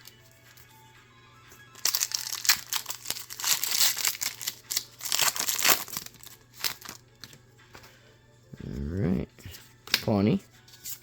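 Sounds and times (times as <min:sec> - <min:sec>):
foil wrapper crinkling and tearing: 0:01.8 - 0:07.0.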